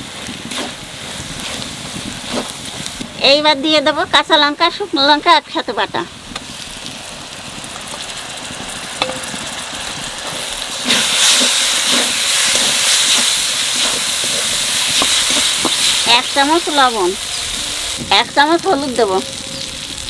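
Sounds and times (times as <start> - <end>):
onions sizzling in hot oil: 0.0 - 20.0
paste stirred into pan: 10.3 - 17.4.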